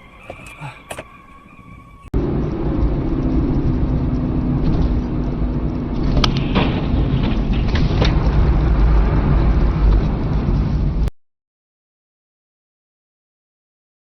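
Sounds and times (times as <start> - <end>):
car engine and road rumble: 0.0 - 11.1.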